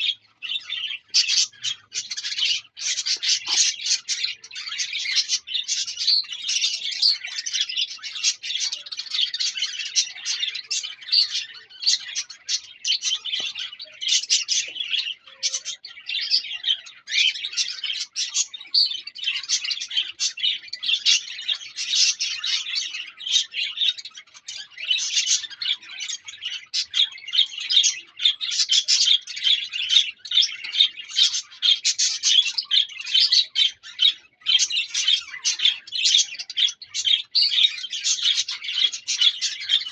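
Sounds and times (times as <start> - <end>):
small parrots chattering and chirping: 0.0 - 39.9.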